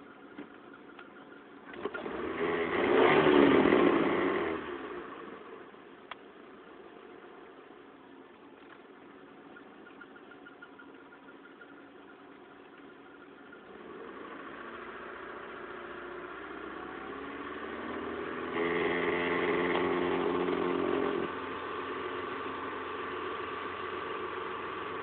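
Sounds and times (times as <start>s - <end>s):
car engine revving: 1.7s - 5.5s, 13.6s - 25.0s.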